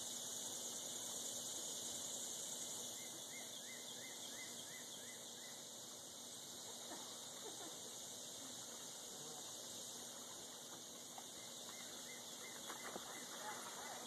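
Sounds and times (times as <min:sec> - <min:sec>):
steady outdoor hiss: 0:00.0 - 0:14.0
small bird chirping: 0:02.8 - 0:05.7.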